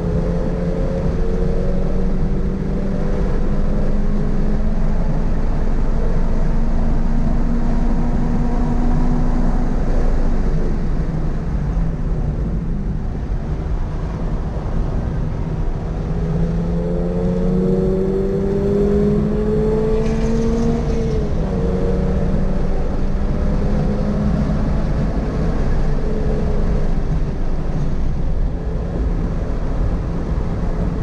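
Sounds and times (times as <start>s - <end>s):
car engine accelerating: 0.0s - 31.0s
road and wind rumble: 0.0s - 31.0s.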